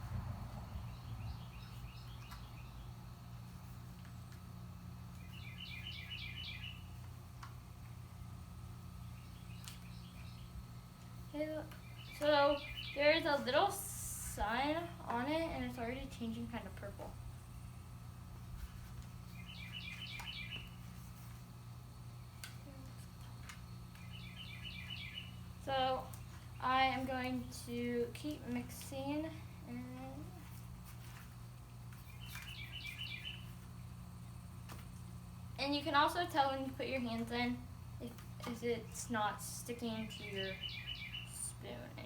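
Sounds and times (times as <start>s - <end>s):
low steady background hum: 0.0s - 42.0s
small songbird chirping: 0.8s - 3.0s, 5.1s - 7.0s, 9.0s - 10.6s, 11.7s - 13.4s, 19.3s - 21.0s, 23.3s - 27.5s, 32.0s - 33.6s, 40.1s - 41.6s.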